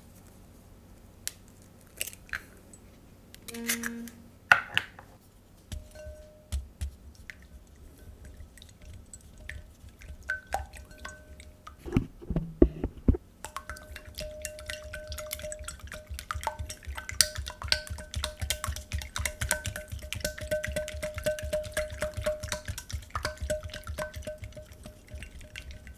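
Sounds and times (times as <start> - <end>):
whisk clicking against bowl: 5.7 - 25.9
heavy knocks: 11.8 - 13.2.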